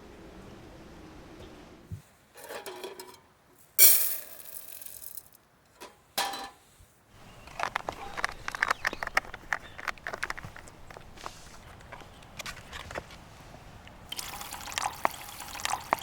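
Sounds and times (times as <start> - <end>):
rustling: 7.3 - 13.9.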